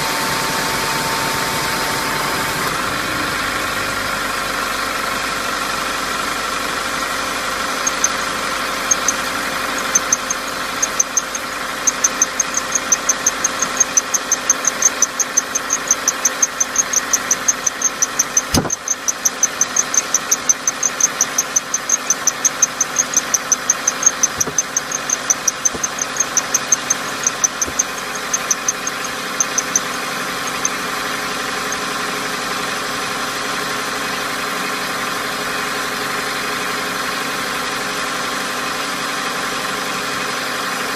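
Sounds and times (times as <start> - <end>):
car engine idling: 0.0 - 40.3
high-pitched chirping tick: 7.8 - 30.8
sharp knock: 18.5 - 18.8.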